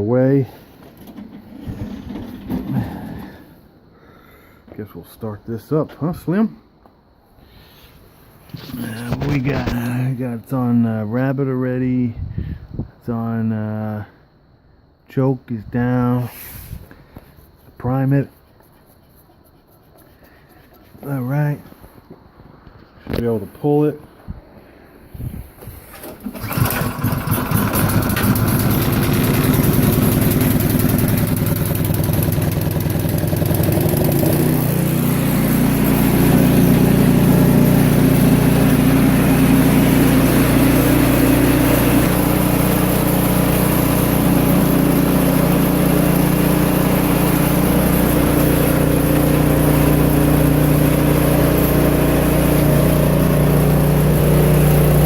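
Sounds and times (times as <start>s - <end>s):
snow blower engine running: 0.4s - 3.5s, 25.9s - 55.0s
snow blower engine pull-started: 0.5s - 3.6s, 8.5s - 10.2s, 25.6s - 55.0s.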